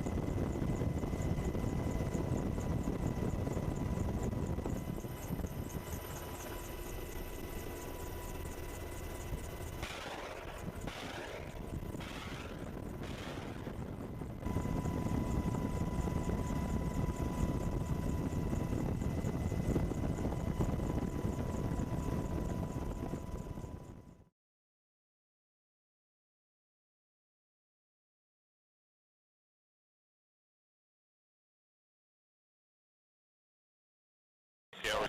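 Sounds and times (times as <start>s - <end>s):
helicopter rotor and engine: 0.0s - 24.3s, 34.8s - 35.0s.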